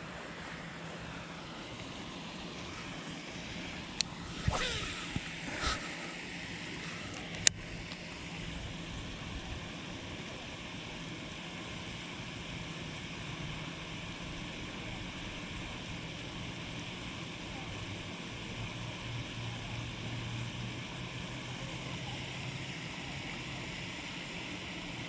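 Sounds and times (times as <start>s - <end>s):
wind: 0.0s - 25.0s
fishing line whizzing off reel: 4.0s - 6.1s.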